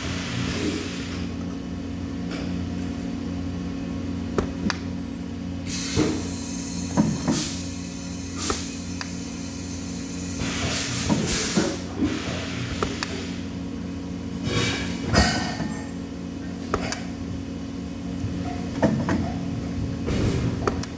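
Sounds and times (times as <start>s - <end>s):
steady machine hum: 0.0s - 20.9s
short hisses: 5.7s - 13.1s.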